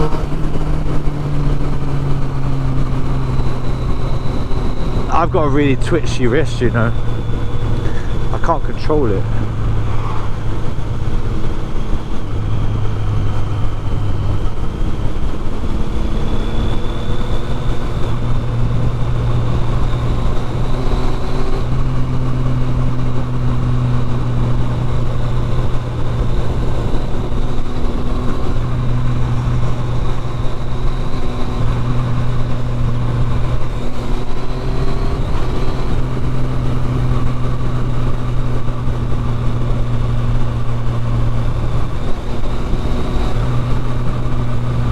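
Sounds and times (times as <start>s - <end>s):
motorcycle engine through loud exhaust: 0.0s - 44.9s
faint high whine: 2.7s - 14.4s.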